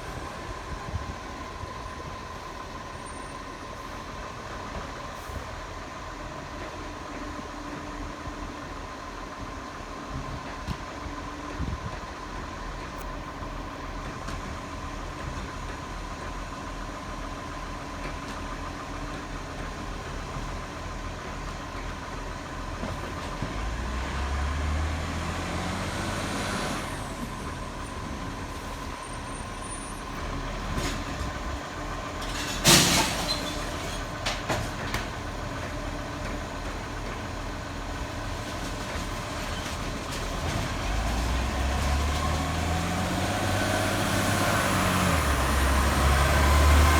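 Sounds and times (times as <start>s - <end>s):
garbage truck diesel engine: 0.0s - 46.9s.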